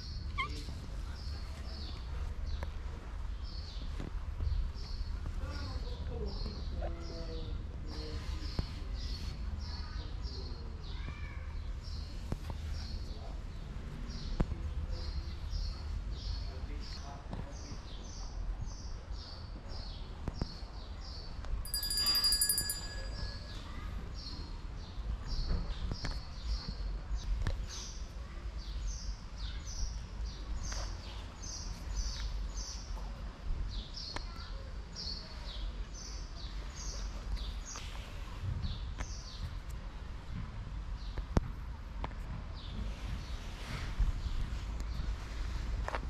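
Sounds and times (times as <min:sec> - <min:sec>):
small bird chirping: 0:21.7 - 0:24.5.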